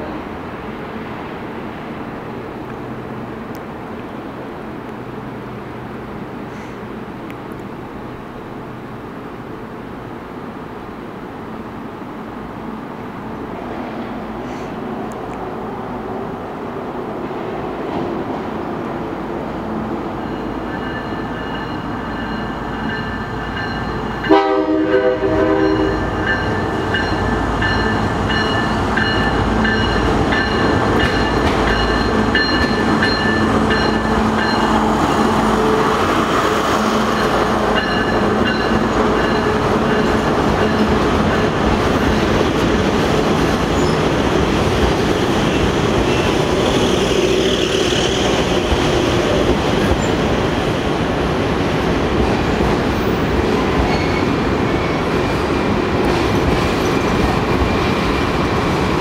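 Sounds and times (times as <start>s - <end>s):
train horn blast: 24.2s - 26.1s.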